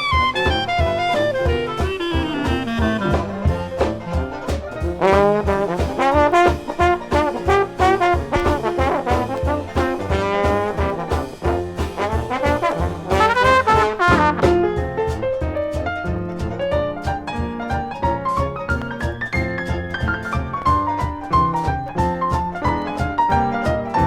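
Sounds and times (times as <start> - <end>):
brass downward slide: 0.0 - 14.8
jazz band playing: 0.0 - 24.0.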